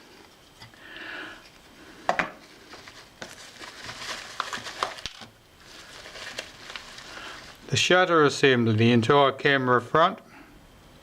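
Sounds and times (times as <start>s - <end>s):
packaging rustling: 2.4s - 7.7s.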